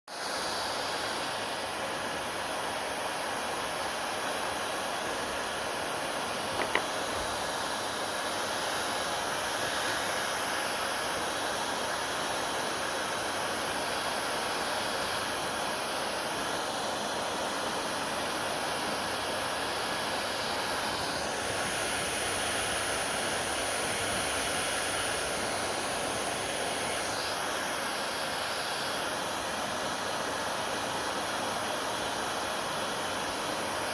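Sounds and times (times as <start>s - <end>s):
hair dryer running: 0.2s - 33.9s
short click: 6.5s - 6.9s.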